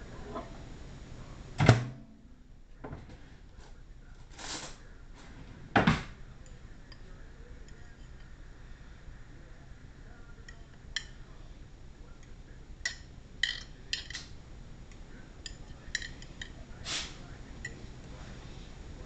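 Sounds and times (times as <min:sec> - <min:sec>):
utensils clinking against dishes: 0:12.8 - 0:14.4, 0:15.4 - 0:17.9.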